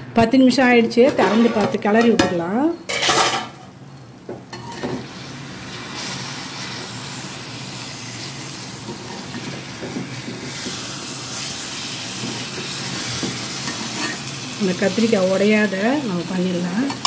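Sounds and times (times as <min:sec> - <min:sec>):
spatula scraping a pan: 0:01.2 - 0:01.8
food sizzling in oil: 0:02.9 - 0:17.0.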